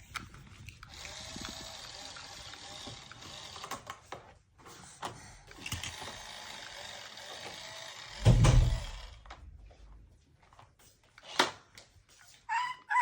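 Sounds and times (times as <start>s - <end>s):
toy vehicle clicks and rattles: 0.0s - 8.2s, 11.1s - 12.3s
loud low thump: 8.2s - 9.0s.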